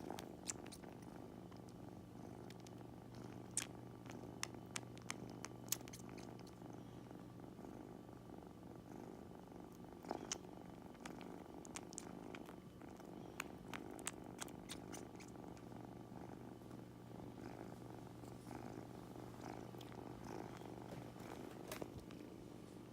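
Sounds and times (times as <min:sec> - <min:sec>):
kitten purring: 0:00.0 - 0:22.9.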